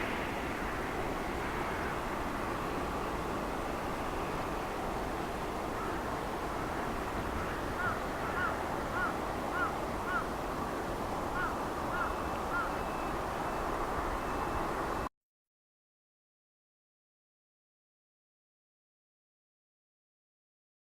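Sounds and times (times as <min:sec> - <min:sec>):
distant jet airliner: 0:00.0 - 0:15.1
wind: 0:00.0 - 0:15.1.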